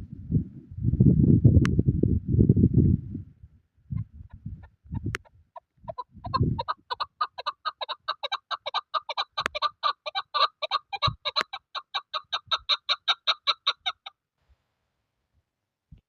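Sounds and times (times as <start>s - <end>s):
wind rumbling on microphone: 0.0s - 7.1s
partridge clucking: 5.9s - 14.1s.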